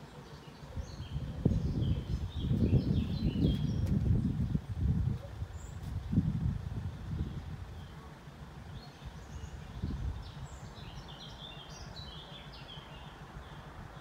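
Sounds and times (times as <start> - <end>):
bird chirping: 0.0 - 4.0, 8.7 - 14.0.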